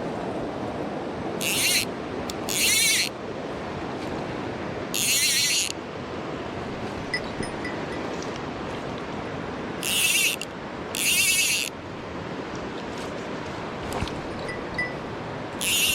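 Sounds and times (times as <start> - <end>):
stream water rushing: 0.0 - 15.9
high-pitched buzzes: 1.4 - 3.1, 5.0 - 5.7, 9.8 - 10.4, 11.0 - 11.7, 15.6 - 15.9.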